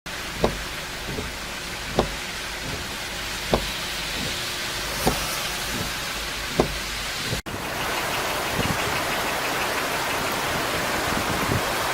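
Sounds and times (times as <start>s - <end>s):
river rushing: 0.2s - 11.9s
dull thumps: 0.4s - 7.4s.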